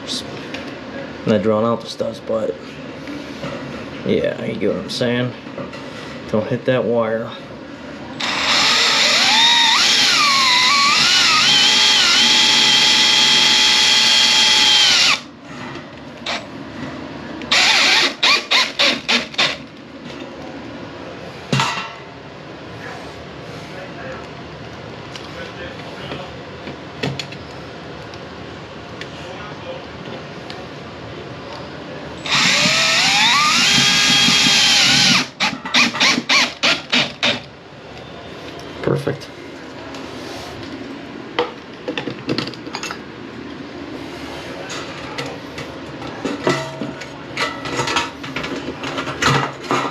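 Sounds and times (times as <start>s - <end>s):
power drill whining: 8.2s - 15.2s, 17.5s - 19.6s, 32.2s - 37.4s
short drill trigger bursts: 8.2s - 15.2s, 17.5s - 19.6s, 32.2s - 37.4s.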